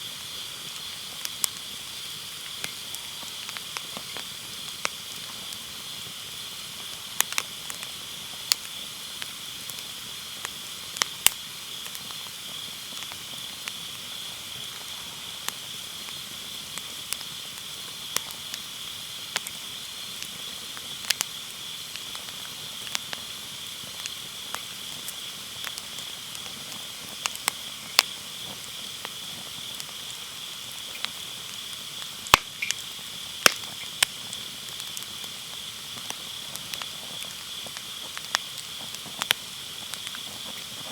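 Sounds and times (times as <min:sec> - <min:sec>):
fire crackling and popping: 0:00.0 - 0:40.9
insects chirring: 0:00.0 - 0:40.9.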